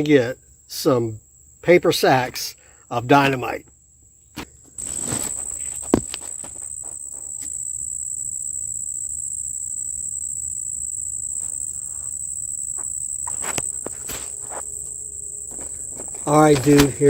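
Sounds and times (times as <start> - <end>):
insects singing shrilly: 0.0 - 17.0
footsteps through plants: 4.8 - 7.1
rustling plants: 4.8 - 7.3.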